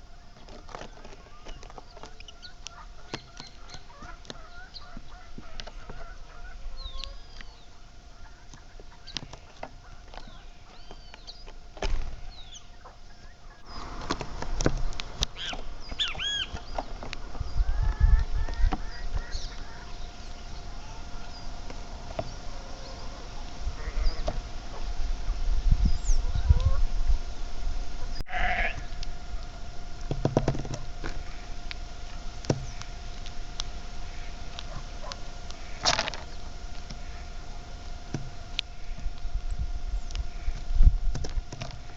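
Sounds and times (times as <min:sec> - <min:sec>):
domestic fowl calling: 0:00.0 - 0:39.3
birds chirping and calling: 0:00.0 - 0:41.9
farm animal bleating: 0:17.6 - 0:24.8, 0:28.2 - 0:29.4.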